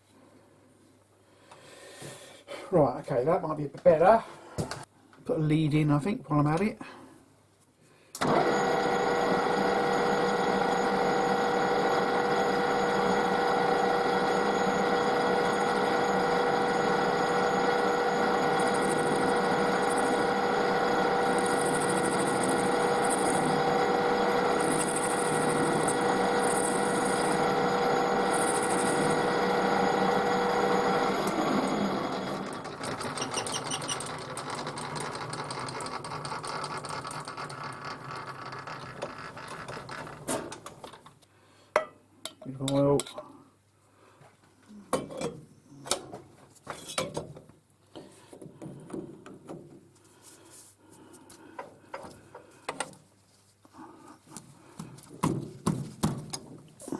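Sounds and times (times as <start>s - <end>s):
metal lathe whining: 8.2s - 40.2s.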